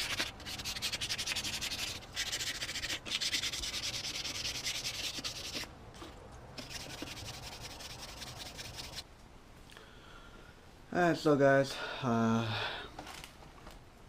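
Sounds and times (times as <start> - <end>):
sandpaper rubbing on metal rim: 0.0 - 5.7, 6.6 - 9.0.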